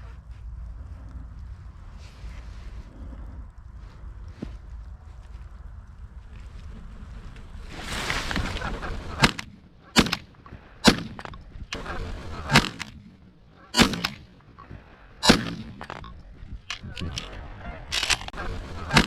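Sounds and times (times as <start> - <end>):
shotgun shots: 8.4 - 19.0.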